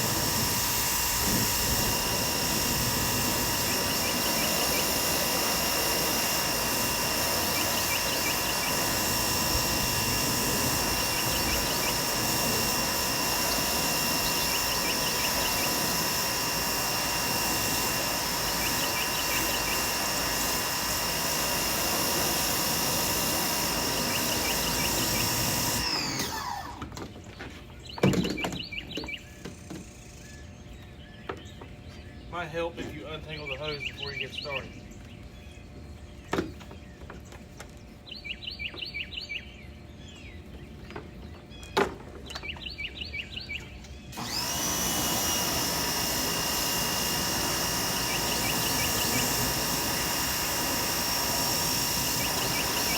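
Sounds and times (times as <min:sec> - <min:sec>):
pressure washer water jet hissing: 0:00.0 - 0:26.8, 0:44.2 - 0:52.9
pressure washer motor whine: 0:00.0 - 0:27.2, 0:42.2 - 0:52.9.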